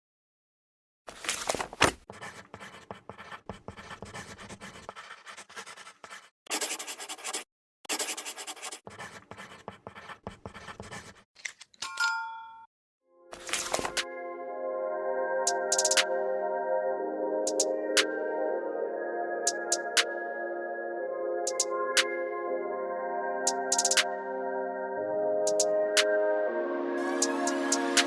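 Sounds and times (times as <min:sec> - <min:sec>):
pencil scratching on paper: 0:01.8 - 0:11.3
chime-like musical tones: 0:11.9 - 0:28.0.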